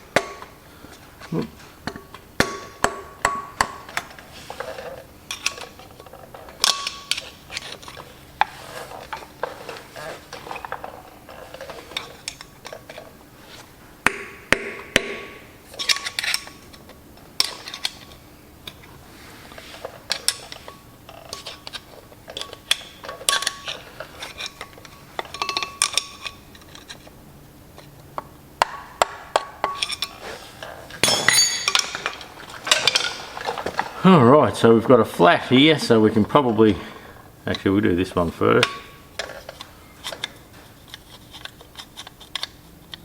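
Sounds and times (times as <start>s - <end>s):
metal-on-metal taps and clinks: 1.9s - 4.0s, 25.3s - 26.2s, 31.0s - 33.2s.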